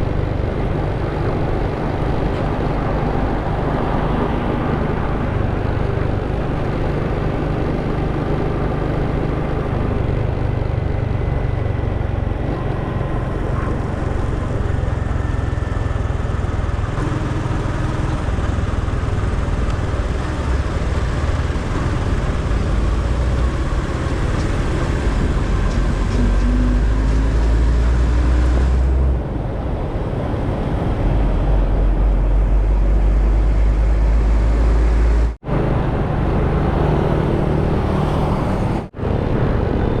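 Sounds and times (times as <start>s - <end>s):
motorcycle engine: 0.0s - 29.5s
road noise: 0.0s - 40.0s
wind noise: 0.0s - 40.0s.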